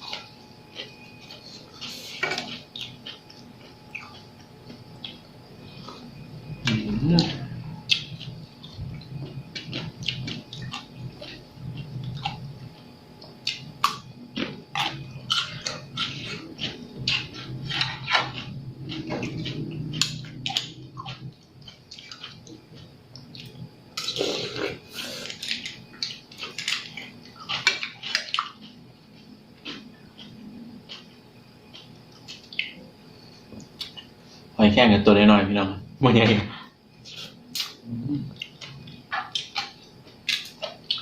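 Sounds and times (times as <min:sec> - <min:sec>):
wet chewing and slurping: 0:00.0 - 0:34.1.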